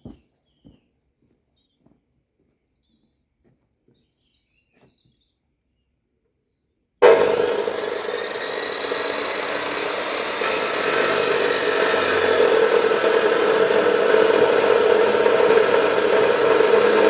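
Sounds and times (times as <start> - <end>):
faint birds chirping: 0.0 - 7.0
loud machine hum: 7.0 - 17.0.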